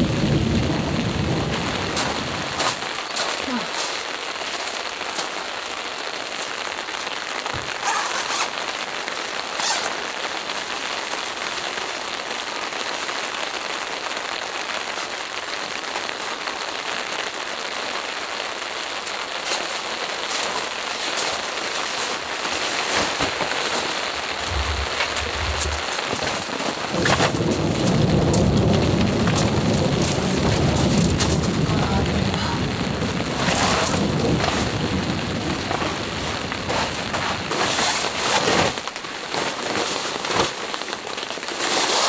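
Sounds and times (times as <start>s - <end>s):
loud raindrop hits: 0.0s - 4.5s, 23.4s - 37.8s
steady rain falling: 0.0s - 42.0s
low rumble: 24.2s - 26.0s.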